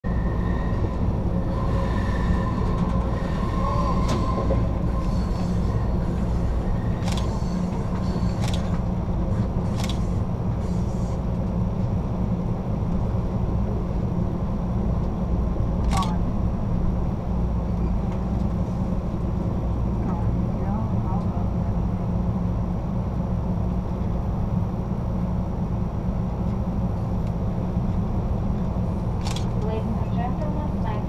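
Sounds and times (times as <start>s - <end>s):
train rumbling on rails: 0.0s - 31.0s
faint wheel squeal: 0.1s - 8.4s
sharp rail clicks: 6.9s - 8.8s, 9.7s - 10.1s.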